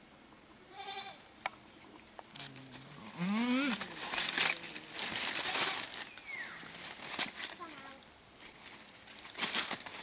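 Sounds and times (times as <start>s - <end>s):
goat bleating: 0.7s - 1.2s
rustling: 2.2s - 10.0s.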